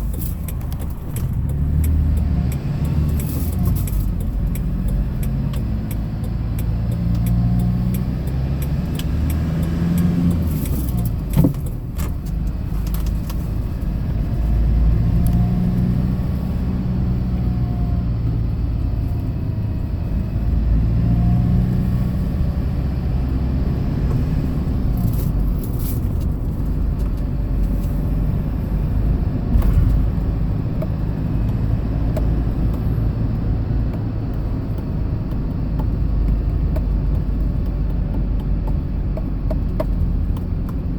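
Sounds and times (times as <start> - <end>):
truck engine and road rumble: 0.0 - 40.9.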